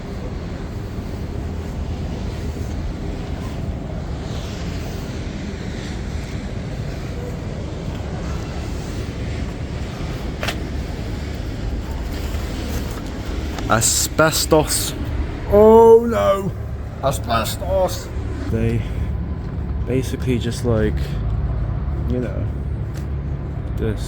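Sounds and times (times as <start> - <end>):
wind rumble on microphone: 0.0 - 13.8
outdoor background noise: 0.0 - 24.0.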